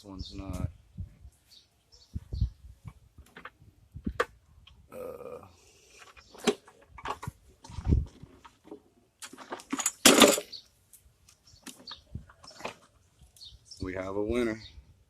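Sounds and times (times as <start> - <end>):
parts rattling: 6.3 - 10.6
engine parts clattering: 6.4 - 10.6.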